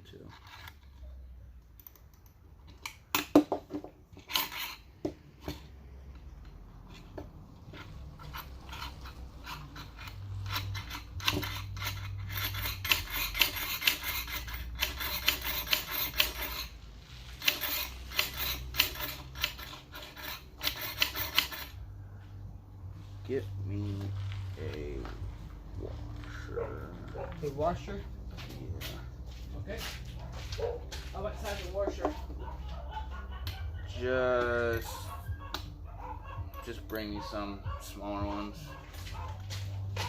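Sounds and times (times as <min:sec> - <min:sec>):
metal parts clinking and scraping: 0:00.0 - 0:03.5, 0:04.1 - 0:22.3, 0:36.2 - 0:37.4.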